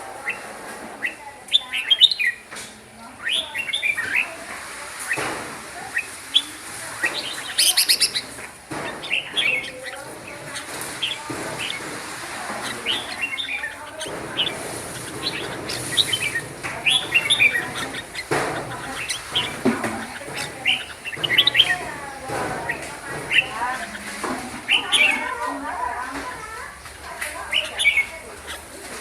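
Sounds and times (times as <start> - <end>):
bird chirping phrases: 3.1 - 4.4, 5.9 - 25.4.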